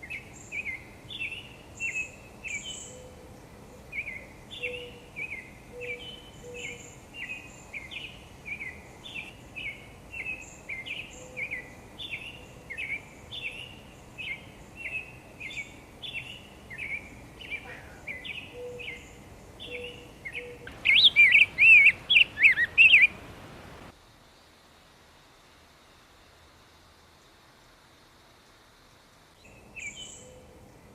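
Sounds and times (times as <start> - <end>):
twittering bird song: 0.0 - 23.9, 29.4 - 30.9
bird calling slurred notes: 4.0 - 23.9.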